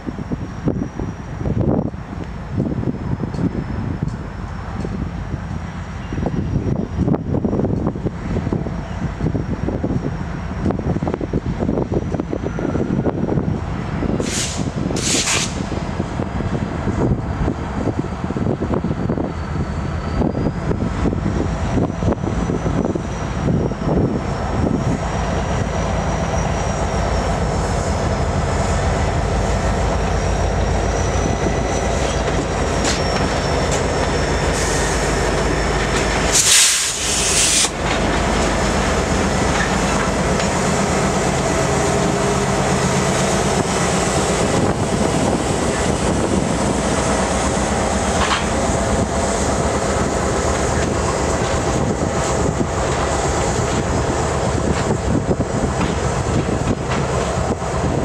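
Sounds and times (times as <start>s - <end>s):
diesel locomotives running: 0.0s - 58.0s
high wheel squeal: 11.9s - 13.4s, 16.9s - 38.2s
loud hiss: 14.2s - 15.7s, 36.2s - 37.8s
train wheels clacking over joints: 30.6s - 40.8s, 47.4s - 49.4s, 50.0s - 58.0s.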